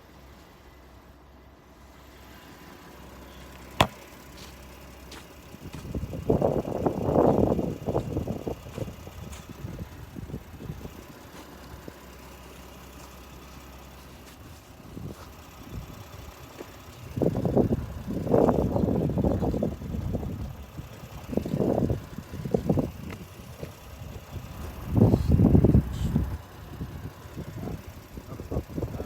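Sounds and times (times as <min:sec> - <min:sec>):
pickup truck engine idling: 0:00.0 - 0:29.0
wind buffeting on microphone: 0:05.6 - 0:11.0, 0:17.0 - 0:29.0.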